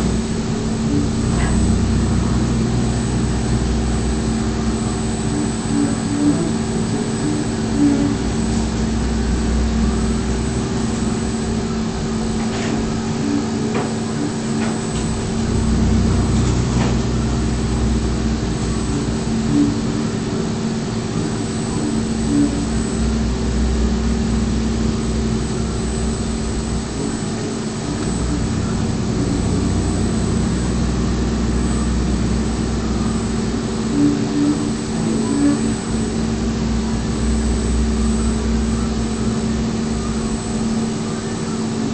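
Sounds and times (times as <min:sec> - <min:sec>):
low machine rumble: 0:00.0 - 0:41.9
milling machine hum: 0:00.0 - 0:41.9.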